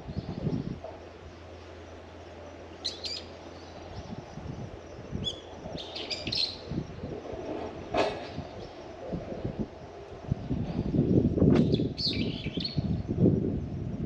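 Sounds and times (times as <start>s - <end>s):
small birds chirping: 0.0s - 7.0s, 11.0s - 13.1s.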